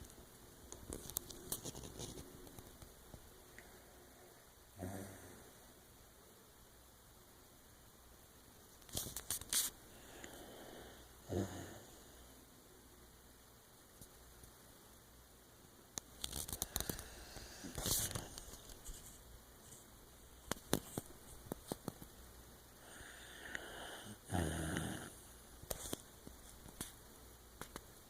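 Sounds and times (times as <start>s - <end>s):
dog snoring: 4.8s - 5.6s, 10.0s - 12.1s, 22.8s - 25.2s.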